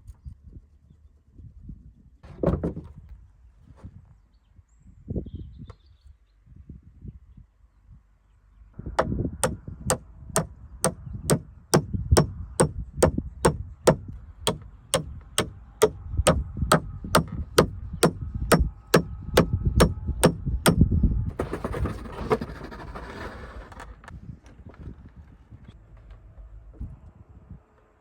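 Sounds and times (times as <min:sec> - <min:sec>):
hammer blows on timber: 0:09.0 - 0:20.9
rough rustling and scraping: 0:21.3 - 0:26.5.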